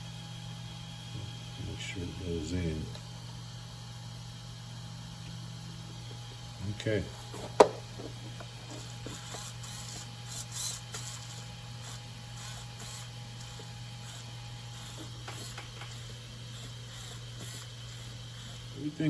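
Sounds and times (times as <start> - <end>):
low electrical hum: 0.0 - 19.0
servo whirring: 6.9 - 19.0.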